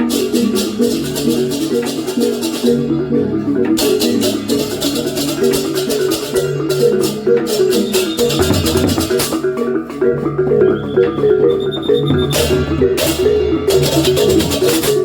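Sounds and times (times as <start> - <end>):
metallophones playing fast patterns: 0.0 - 15.0
low drum: 3.7 - 9.5, 12.0 - 15.0
clashing cymbal strokes: 3.7 - 9.7, 10.7 - 15.0.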